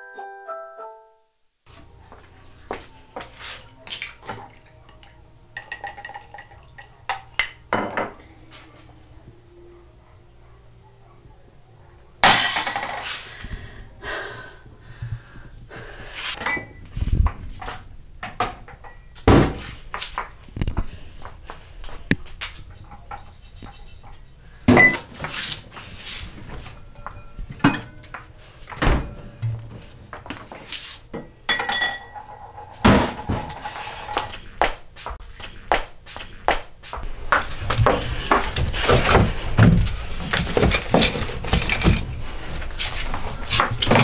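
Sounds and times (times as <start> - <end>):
glasses and crockery clattering: 3.8 - 8.2, 16.4 - 16.9, 18.3 - 19.2, 22.5 - 25.2, 26.6 - 28.3, 31.1 - 34.2, 40.4 - 42.1.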